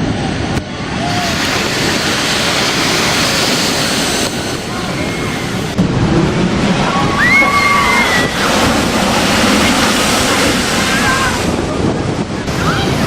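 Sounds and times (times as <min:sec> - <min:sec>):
heavy surf and rushing water: 0:00.0 - 0:13.0
wind buffeting microphone: 0:00.0 - 0:13.0.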